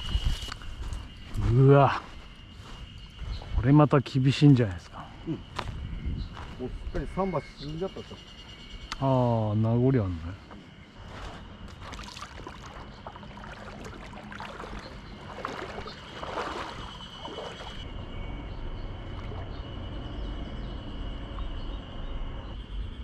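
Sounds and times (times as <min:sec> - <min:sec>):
faint high insect drone: 0:00.0 - 0:23.0
water sloshing and splashing: 0:10.4 - 0:17.9, 0:18.9 - 0:20.1.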